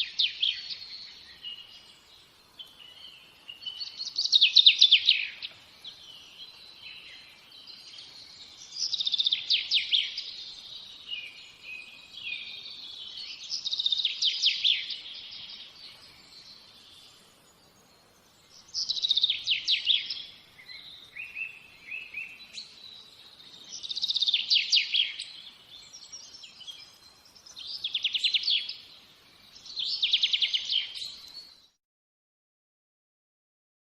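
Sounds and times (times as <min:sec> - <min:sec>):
soft bird twittering: 0:00.0 - 0:31.8
songbird trilling: 0:02.7 - 0:07.8, 0:08.6 - 0:15.8, 0:18.6 - 0:22.8, 0:23.5 - 0:28.9, 0:29.6 - 0:31.2.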